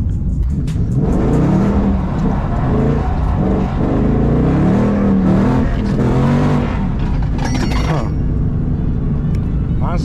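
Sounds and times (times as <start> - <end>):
car engine revving: 0.4 - 9.8.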